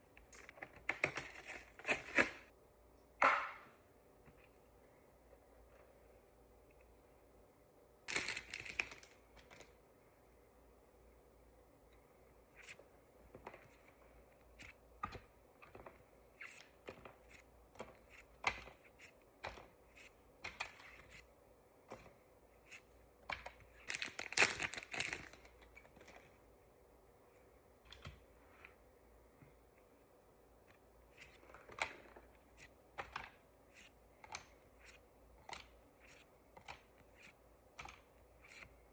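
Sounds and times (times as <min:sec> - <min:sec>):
packaging tearing and crinkling: 0:08.1 - 0:09.1, 0:23.8 - 0:25.4
packaging clicks and rustles: 0:08.1 - 0:09.7, 0:23.4 - 0:26.3.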